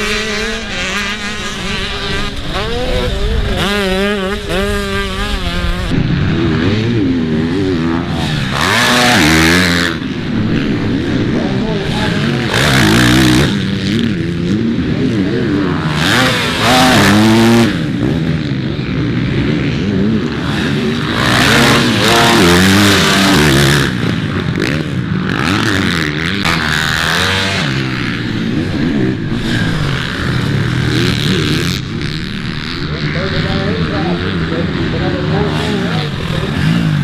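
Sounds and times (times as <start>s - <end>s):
dirt bike engines revving: 0.0s - 37.0s.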